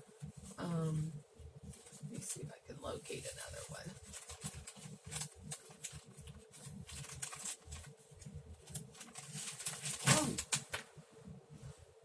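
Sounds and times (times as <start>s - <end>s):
paper pages rustling: 3.2s - 11.0s.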